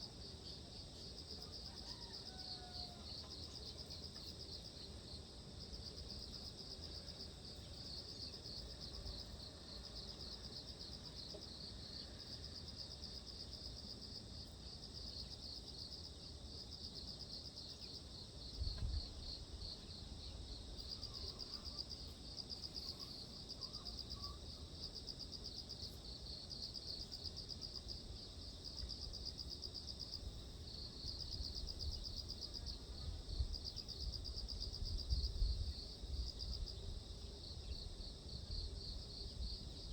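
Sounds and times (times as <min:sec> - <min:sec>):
insects trilling: 0:00.4 - 0:04.9, 0:17.6 - 0:34.2.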